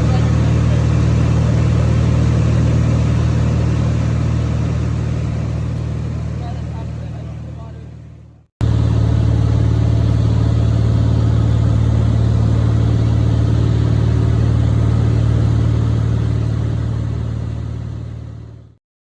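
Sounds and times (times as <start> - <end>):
small airplane engine drone: 0.0 - 18.8.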